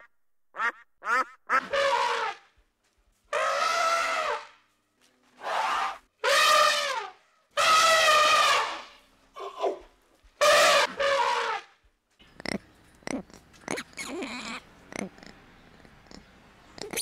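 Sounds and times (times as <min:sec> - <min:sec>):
elephants trumpeting: 0:05.4 - 0:08.9, 0:10.4 - 0:11.7.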